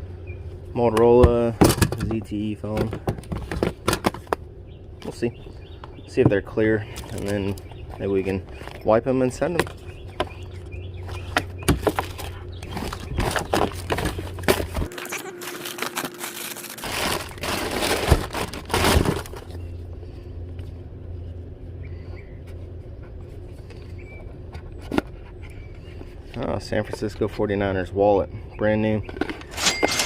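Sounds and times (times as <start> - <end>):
low hum: 0.0 - 30.0
items clattering in a bin: 1.1 - 4.4, 11.1 - 19.6, 29.0 - 30.0
plastic crinkling: 11.8 - 19.6.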